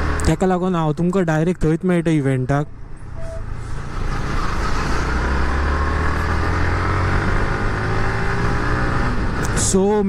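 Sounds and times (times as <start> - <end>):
wind and road noise: 0.0 - 10.0
motorcycle engine hum: 2.7 - 9.8.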